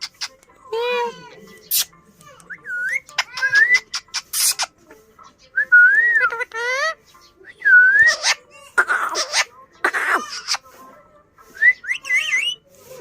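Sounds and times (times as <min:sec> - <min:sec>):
parrot whistling: 0:11.6 - 0:12.6.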